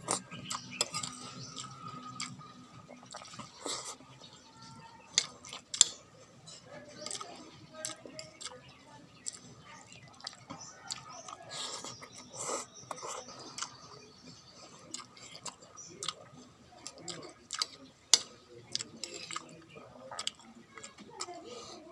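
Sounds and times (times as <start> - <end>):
person chewing and eating: 0.0 - 4.1, 5.0 - 6.1, 6.9 - 8.6, 9.2 - 21.9
mouth and utensil sounds: 0.0 - 21.9.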